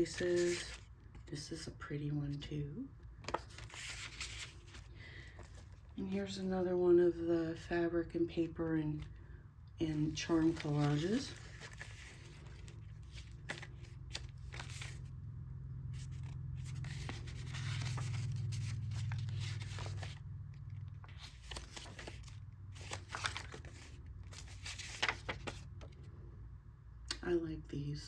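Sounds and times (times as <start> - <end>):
paper rustling and scraping: 0.0 - 0.9, 3.2 - 5.8, 10.0 - 15.1, 15.9 - 26.0
steady low hum: 0.0 - 28.0.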